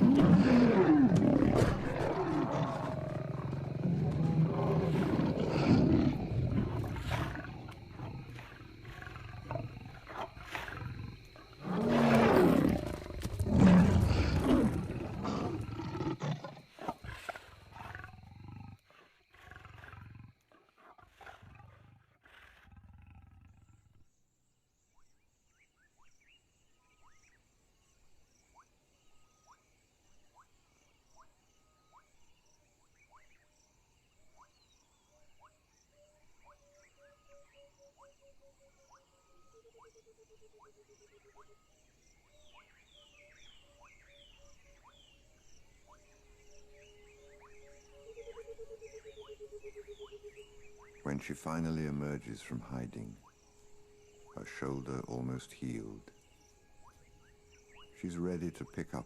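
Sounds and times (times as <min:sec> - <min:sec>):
lions snarling and roaring: 0:00.0 - 0:24.1
insects chirping: 0:00.0 - 0:59.0.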